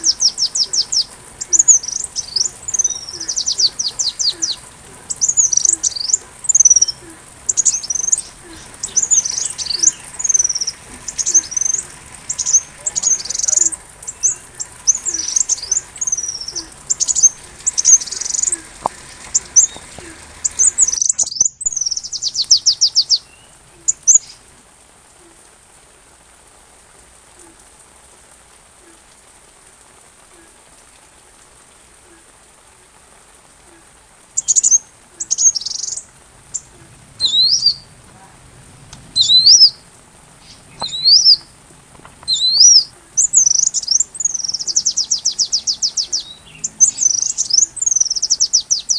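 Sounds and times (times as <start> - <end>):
bird chirps and trills: 0.0 - 24.4, 34.4 - 38.0, 39.0 - 48.9
faint hiss: 0.0 - 48.9.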